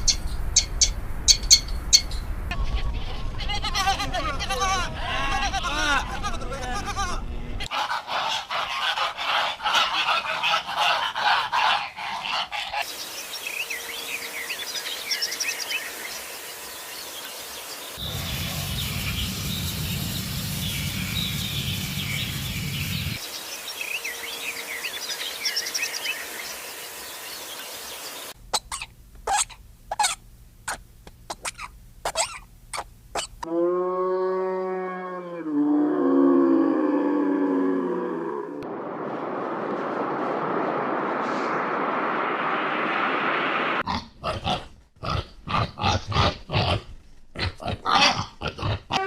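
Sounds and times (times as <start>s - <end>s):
birds calling: 7.7s - 33.5s
steady hiss: 12.8s - 28.4s
low rumble: 18.0s - 23.2s, 37.5s - 43.8s.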